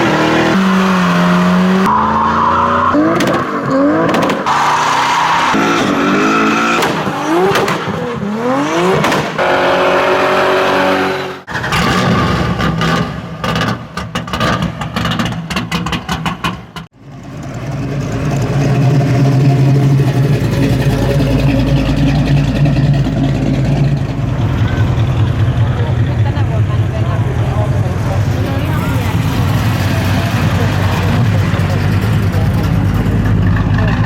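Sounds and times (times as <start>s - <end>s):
car engine revving: 0.0s - 34.0s
engine crackling: 11.3s - 34.0s
deep engine rumble: 11.5s - 34.0s.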